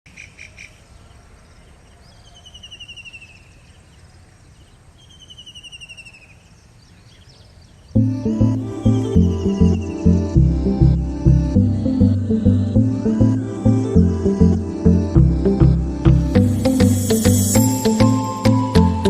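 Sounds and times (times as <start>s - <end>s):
faint outdoor background: 0.0s - 19.0s
music with steady beat: 8.0s - 19.0s.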